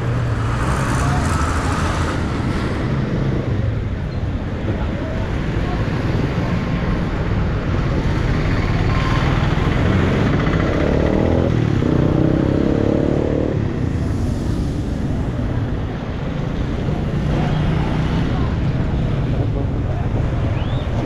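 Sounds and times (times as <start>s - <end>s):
vehicle engine passing by: 0.0s - 3.7s, 8.2s - 19.3s
street traffic rumble: 0.0s - 21.0s.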